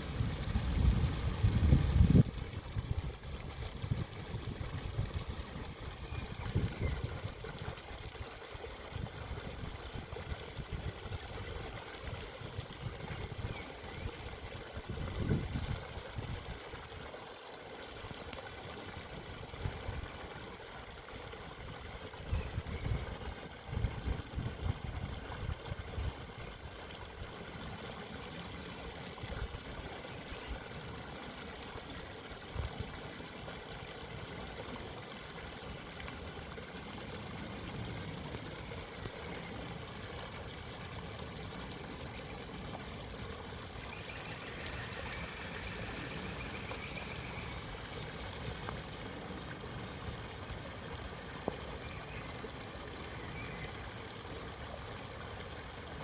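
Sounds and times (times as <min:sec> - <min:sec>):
stream water babbling: 0:00.0 - 0:56.0
faint bird twittering: 0:43.9 - 0:48.8.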